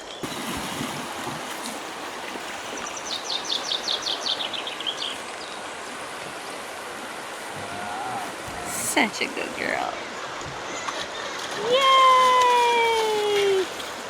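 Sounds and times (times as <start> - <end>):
flowing stream: 0.0 - 14.0
bird singing a rapid trill: 3.0 - 5.2.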